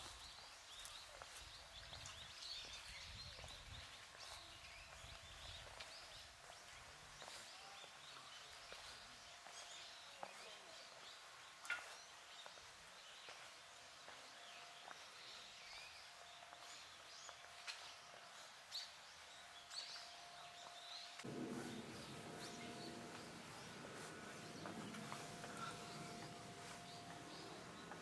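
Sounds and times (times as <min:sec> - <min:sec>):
bird chirps: 0:15.7 - 0:28.0.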